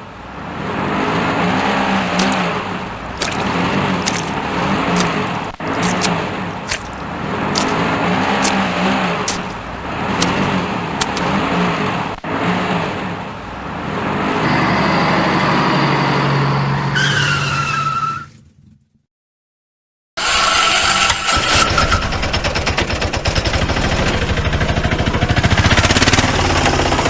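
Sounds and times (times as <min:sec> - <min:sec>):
vehicle engine revving: 0:00.6 - 0:16.9, 0:20.2 - 0:27.0
sharp clicks: 0:02.2 - 0:02.4, 0:03.2 - 0:07.8, 0:10.2 - 0:11.3
falling squeal: 0:14.4 - 0:18.4.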